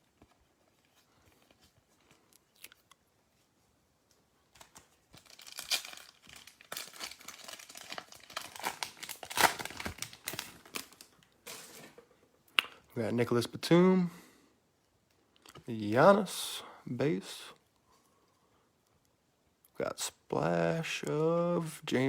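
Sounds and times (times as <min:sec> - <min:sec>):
card wrapper tearing and crinkling: 0:04.6 - 0:11.9.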